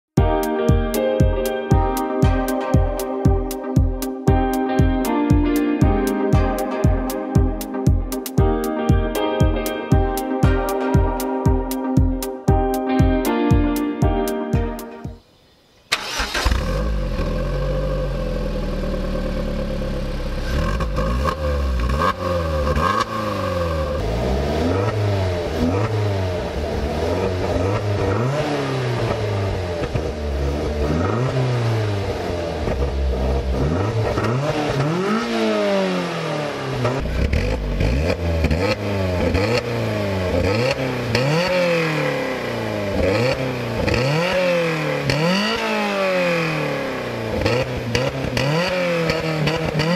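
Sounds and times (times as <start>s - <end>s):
car engine idling and revving: 15.9s - 49.9s.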